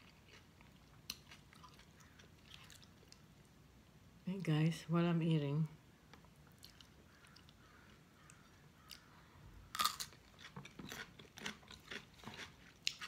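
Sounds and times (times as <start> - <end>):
crisp crunching and chewing: 0.0 - 3.2, 9.7 - 13.0.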